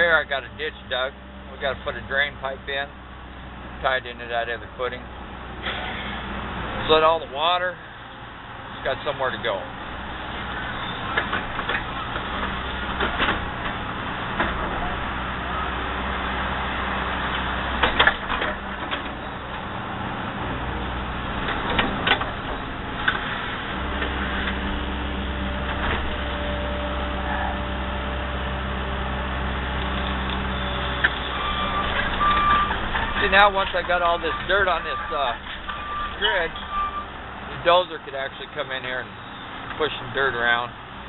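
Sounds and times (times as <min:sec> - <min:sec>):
excavator diesel engine droning: 0:00.0 - 0:41.0
sharp knocks and clanks: 0:10.3 - 0:14.9, 0:17.3 - 0:19.2, 0:21.4 - 0:24.7.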